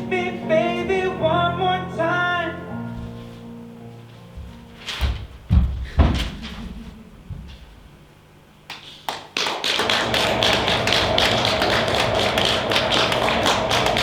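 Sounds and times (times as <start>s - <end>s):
loud knocks and thumps: 5.0s - 7.7s
fast dense tapping: 9.2s - 14.0s.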